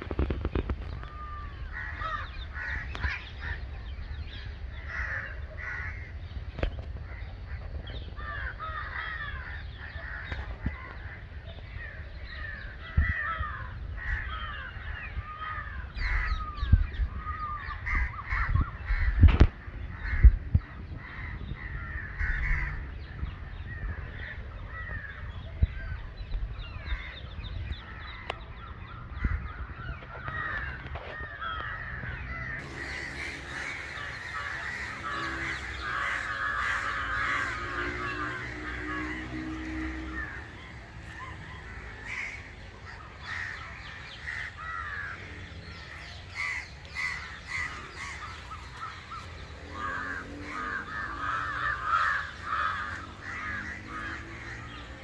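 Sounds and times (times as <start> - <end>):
crows cawing: 0.1 - 3.7, 4.7 - 6.3, 7.1 - 11.2, 11.8 - 16.6, 17.2 - 20.4, 21.0 - 23.0, 30.1 - 55.0
low rumble on microphone: 32.6 - 55.0.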